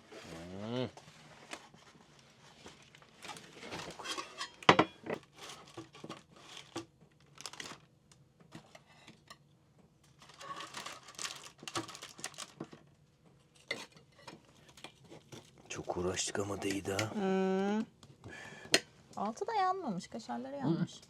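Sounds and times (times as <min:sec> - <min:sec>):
crinkling rustles: 0:01.0 - 0:07.9, 0:10.0 - 0:17.0
utensils and pan clinking: 0:03.8 - 0:05.2.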